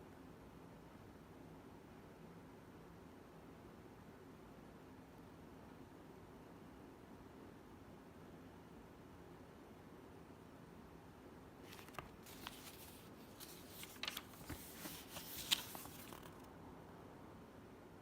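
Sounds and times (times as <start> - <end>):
faint rustling: 11.7 - 16.5.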